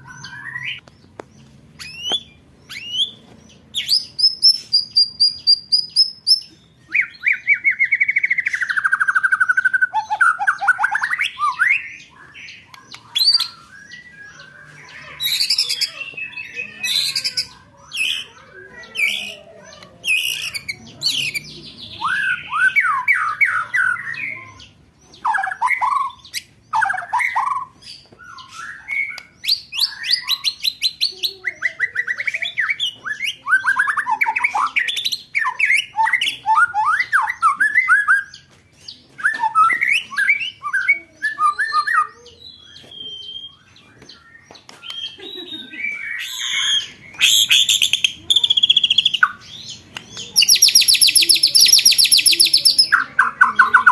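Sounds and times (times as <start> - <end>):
songbird trills and chattering: 0.0 - 53.9.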